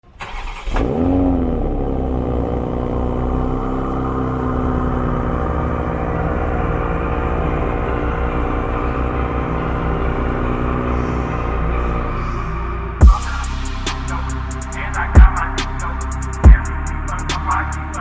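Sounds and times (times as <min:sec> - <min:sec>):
car engine starting and idling: 0:00.0 - 0:18.0.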